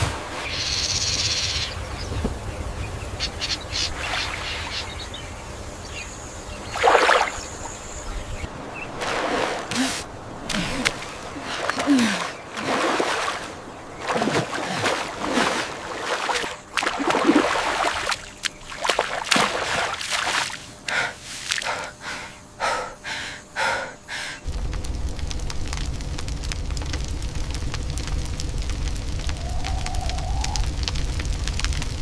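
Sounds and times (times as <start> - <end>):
water sloshing: 6.7 - 7.8, 8.5 - 21.9
person gasping and breathing heavily: 9.7 - 12.4, 20.8 - 24.4
low rumble: 24.4 - 32.0.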